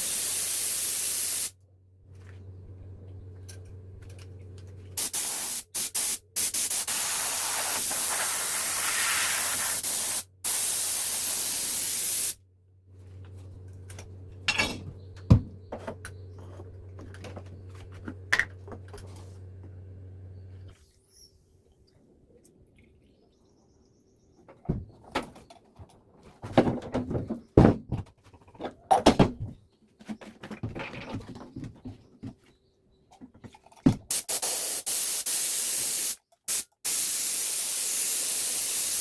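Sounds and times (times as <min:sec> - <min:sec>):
compressed air hissing: 0:00.0 - 0:01.5, 0:05.0 - 0:12.4, 0:34.1 - 0:39.0
low steady hum: 0:01.6 - 0:05.0.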